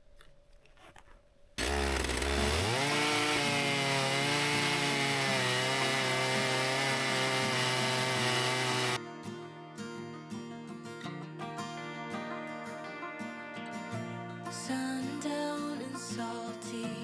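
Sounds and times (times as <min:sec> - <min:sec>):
chainsaw engine revving: 0:01.6 - 0:09.0.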